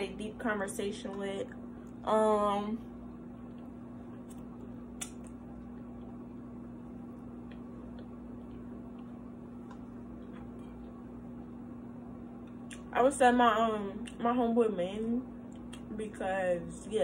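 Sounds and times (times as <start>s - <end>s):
steady low hum: 0.0s - 17.0s
person chewing: 7.4s - 11.0s.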